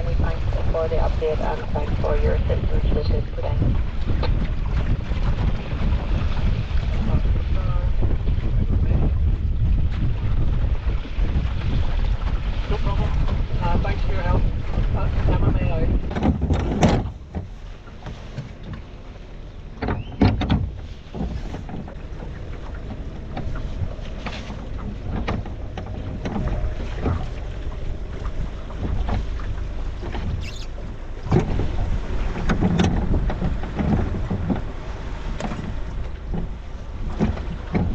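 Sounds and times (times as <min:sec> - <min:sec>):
small boat engine rumble: 0:00.0 - 0:37.9
wind on microphone: 0:00.0 - 0:37.9
knocks from boat: 0:03.5 - 0:13.8, 0:14.4 - 0:37.9.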